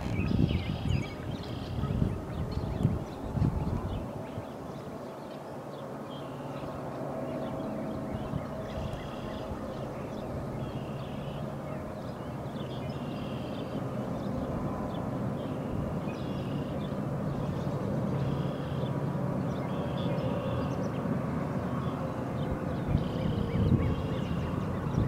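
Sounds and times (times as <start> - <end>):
birds calling: 7.4 - 18.9.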